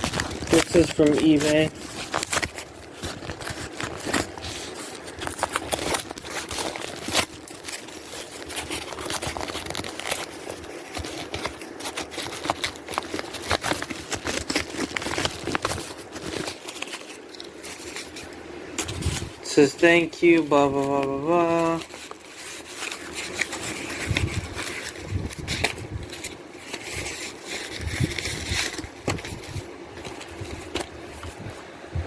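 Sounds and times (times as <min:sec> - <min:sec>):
packaging crinkling and rustling: 0:00.0 - 0:32.0.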